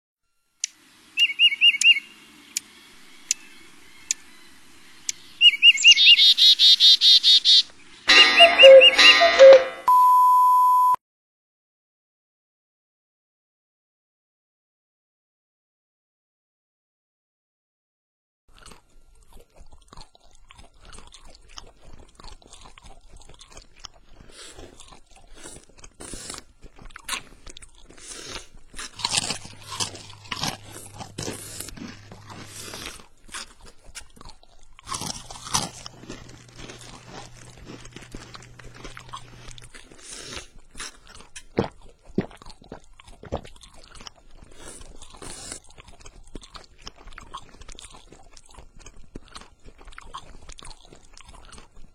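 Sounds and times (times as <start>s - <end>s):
low steady hum: 0.3s - 11.0s, 28.4s - 40.0s
crunching and chewing: 1.2s - 8.5s, 18.5s - 51.9s.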